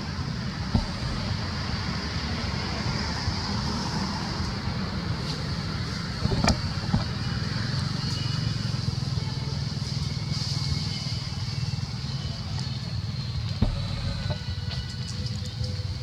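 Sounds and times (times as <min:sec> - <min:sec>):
vehicle engine rumbling: 0:00.4 - 0:02.4, 0:05.2 - 0:12.3, 0:13.1 - 0:14.8
sharp knocks: 0:00.7 - 0:01.6, 0:06.2 - 0:07.2, 0:13.6 - 0:14.5.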